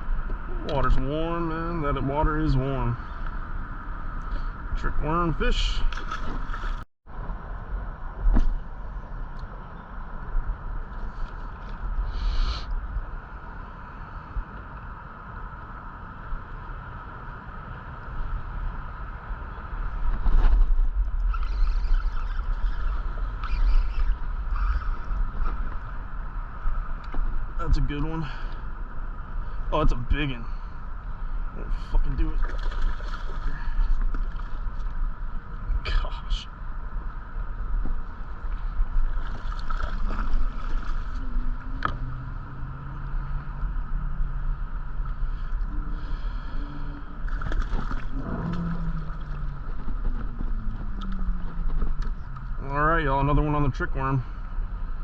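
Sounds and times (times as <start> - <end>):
wind buffeting microphone: 0.0 - 35.9, 36.5 - 55.0
faint whine: 0.0 - 55.0
heavy low rumble: 22.0 - 55.0
water lapping against boat hull: 31.7 - 35.0, 37.8 - 42.2, 45.0 - 52.6.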